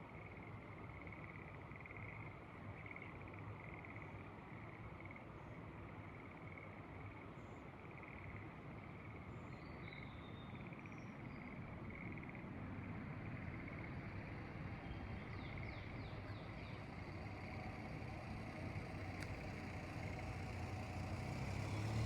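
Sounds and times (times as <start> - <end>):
frogs trilling: 7.9 - 8.6, 10.6 - 14.4.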